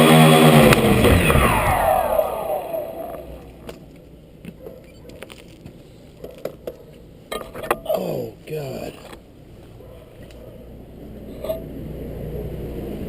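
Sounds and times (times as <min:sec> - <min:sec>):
drone motors winding down: 0:00.0 - 0:03.6.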